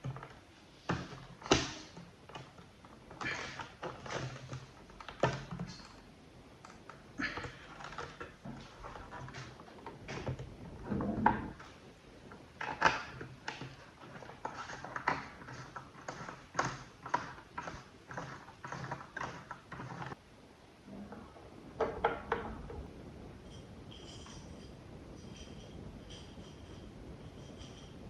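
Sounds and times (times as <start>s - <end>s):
small hard parts clicking: 0.0s - 6.0s, 6.6s - 20.2s.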